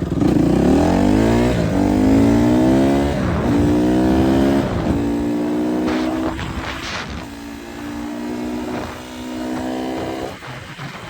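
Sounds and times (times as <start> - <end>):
dirt bike engine accelerating: 0.0 - 11.0.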